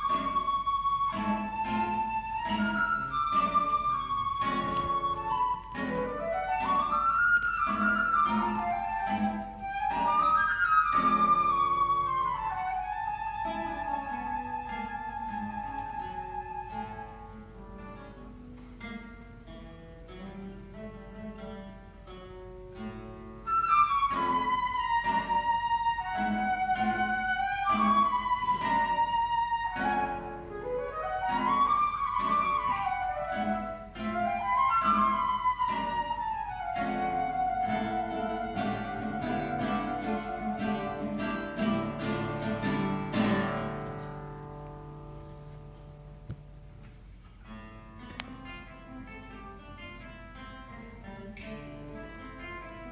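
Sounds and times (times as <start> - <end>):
flute melody: 0.0 - 18.2, 23.3 - 45.6
guitar plucking: 0.0 - 52.9.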